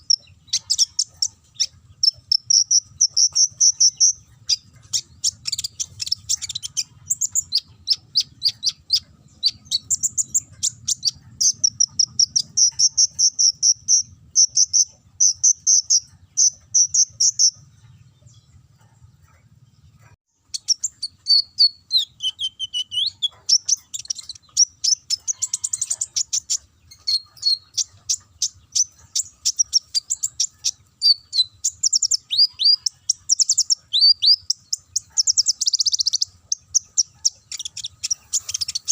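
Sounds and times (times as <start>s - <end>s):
sunbird chattering trills: 0.0s - 18.6s, 19.3s - 38.9s.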